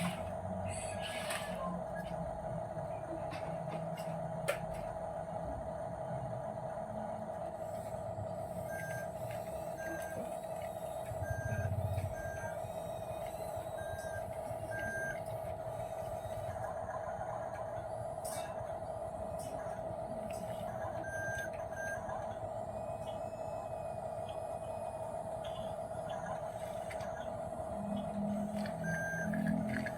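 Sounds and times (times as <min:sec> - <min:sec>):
toy truck electric whine: 0:00.0 - 0:02.1, 0:07.4 - 0:16.8, 0:17.6 - 0:29.9
short electronic beeps: 0:27.8 - 0:29.9.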